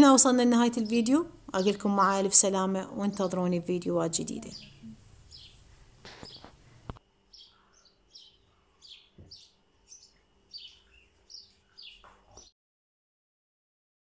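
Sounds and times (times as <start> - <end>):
small bird chirping: 4.3 - 12.5.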